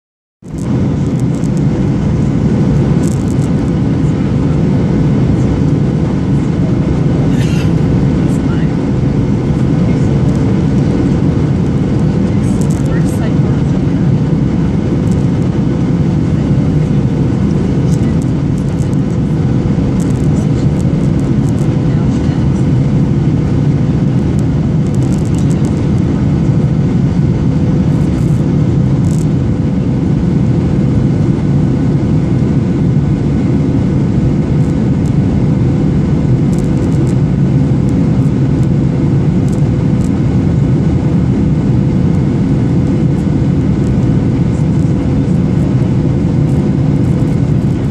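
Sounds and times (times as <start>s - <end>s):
airplane cabin roar: 0.4s - 47.9s.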